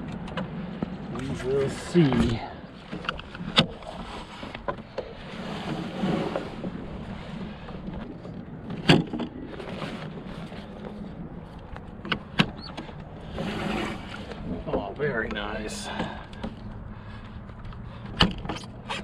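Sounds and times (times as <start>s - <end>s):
water and wind wash: 0.0s - 19.0s
knocks from boat rig and hull: 8.6s - 10.0s, 18.0s - 19.0s.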